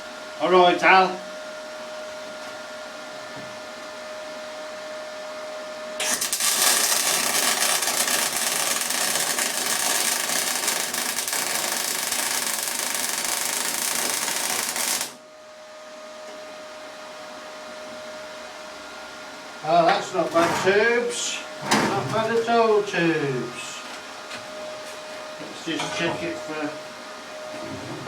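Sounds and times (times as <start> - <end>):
steady hum with thin whine: 0.0 - 28.0
electric arc welder crackling: 6.0 - 15.2.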